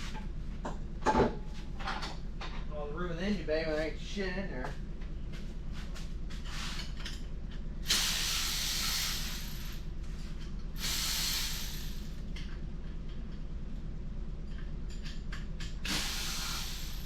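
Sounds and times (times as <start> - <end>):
hissing bursts: 7.9 - 9.8, 10.8 - 12.1, 15.9 - 17.0.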